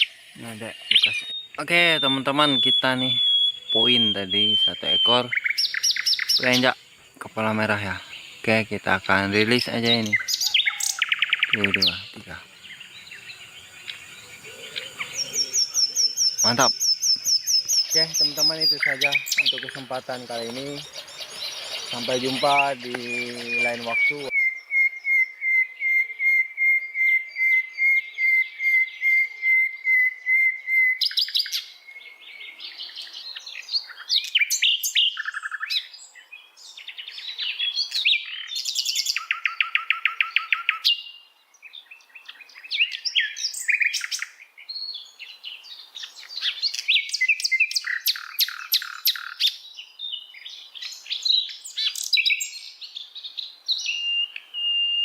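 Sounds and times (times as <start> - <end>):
songbird repeating high note: 0.0 - 5.4, 6.0 - 24.5
songbird chirps and trills: 0.0 - 55.0.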